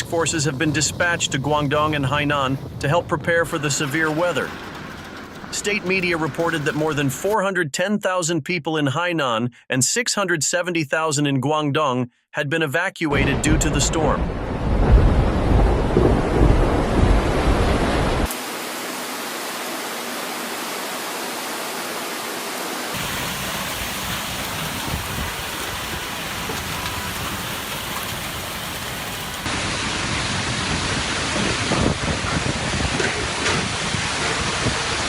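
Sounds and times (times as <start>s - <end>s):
heavy rain hissing: 3.5s - 7.4s, 23.0s - 32.9s
wind buffeting microphone: 14.3s - 18.3s, 23.0s - 29.5s, 30.8s - 35.0s.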